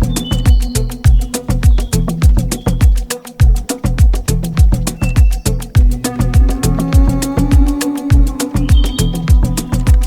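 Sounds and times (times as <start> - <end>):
deep house dance music: 0.0 - 10.0
hi-hat ticks: 0.0 - 10.0
kick drum: 0.0 - 10.0
sustained synth tones: 5.8 - 9.9.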